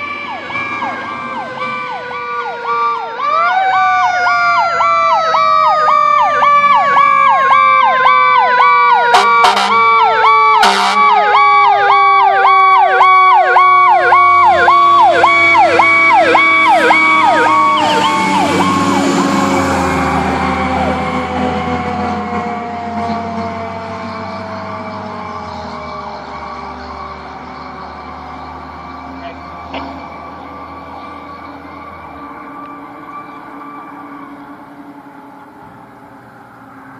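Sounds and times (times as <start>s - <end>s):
electronic siren yelping: 0.0s - 36.0s
engine and road noise: 0.0s - 36.9s
mechanical siren wailing: 0.0s - 36.9s
horn blasts: 9.1s - 10.0s, 10.6s - 11.2s.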